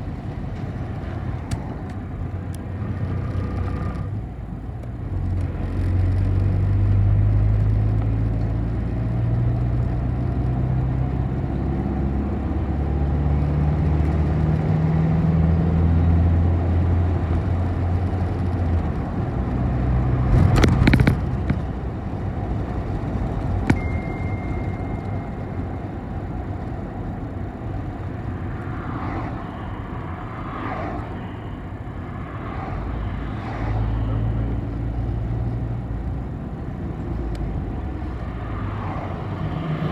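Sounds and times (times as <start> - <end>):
city bus engine running: 0.0 - 39.9
brief high beep: 23.7 - 26.2.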